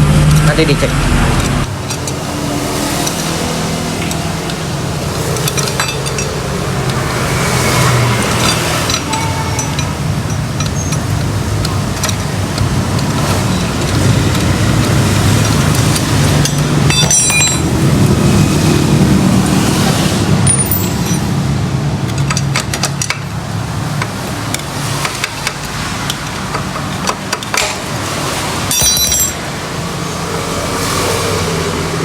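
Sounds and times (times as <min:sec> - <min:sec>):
metal tools clinking: 0:01.7 - 0:18.2, 0:20.4 - 0:21.4, 0:22.0 - 0:30.1.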